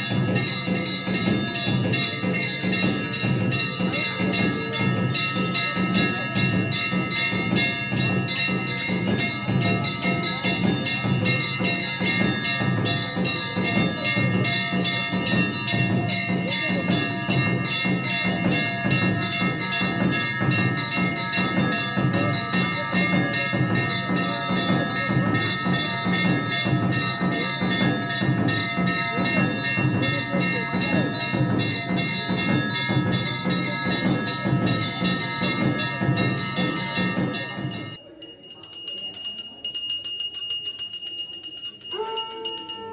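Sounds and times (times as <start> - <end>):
temple bells ringing rapidly: 0.0 - 42.9.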